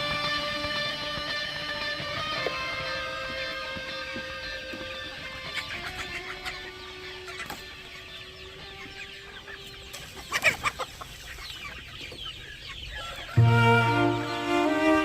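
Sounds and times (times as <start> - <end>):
music: 0.0 - 7.6, 13.4 - 15.0
chickens clucking: 0.0 - 15.0
chickens squawking: 0.0 - 15.0.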